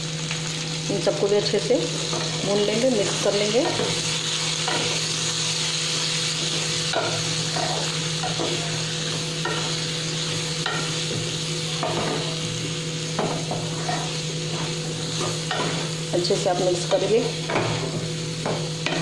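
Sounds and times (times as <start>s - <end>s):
food frying in oil: 0.0s - 19.0s
spatula scraping a pan: 6.4s - 9.9s, 13.2s - 15.9s.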